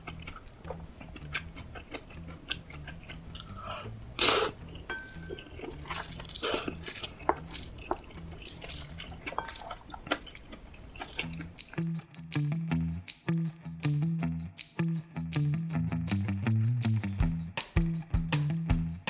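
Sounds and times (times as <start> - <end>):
wet chewing and lip smacks: 0.0 - 11.8.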